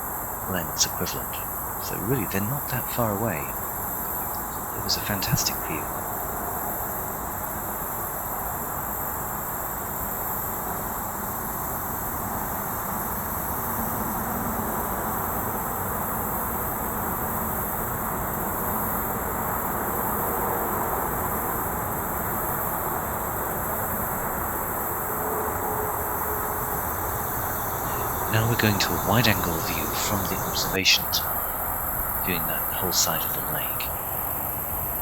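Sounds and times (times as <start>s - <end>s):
distant highway traffic rumble: 0.3s - 6.4s, 24.2s - 35.0s
high-pitched insect drone: 25.6s - 35.0s.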